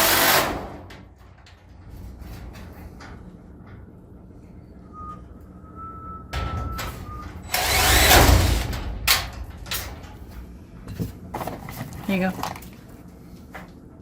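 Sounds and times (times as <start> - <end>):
power drill driving a screw: 7.5 - 8.7.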